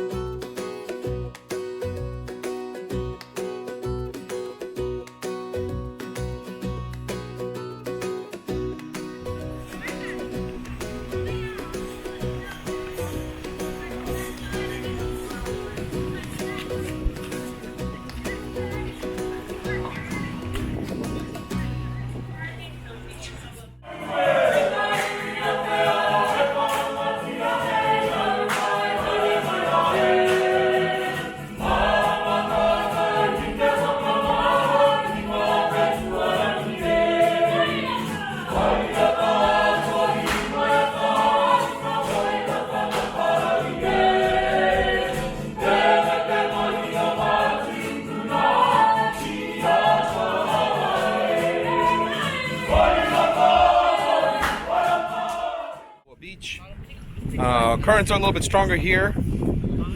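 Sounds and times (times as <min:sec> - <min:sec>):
group of voices singing: 0:23.8 - 0:56.1.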